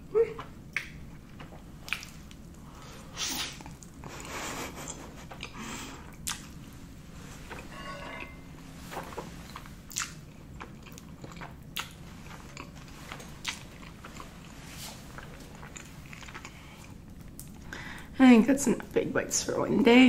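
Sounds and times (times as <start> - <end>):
chewing food: 0.4 - 6.7, 9.0 - 17.8
wet mouth clicks and smacks: 0.7 - 1.0, 1.8 - 2.2, 6.2 - 6.5, 9.9 - 10.2.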